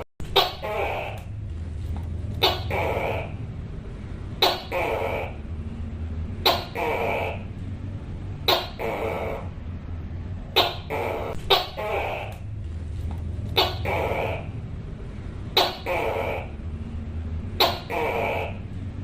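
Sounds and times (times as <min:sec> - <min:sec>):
gecko calling: 0:00.3 - 0:01.4, 0:02.4 - 0:03.6, 0:04.4 - 0:05.6, 0:06.4 - 0:07.6, 0:08.4 - 0:09.7, 0:10.5 - 0:12.6, 0:13.4 - 0:14.7, 0:15.5 - 0:16.8, 0:17.5 - 0:18.8.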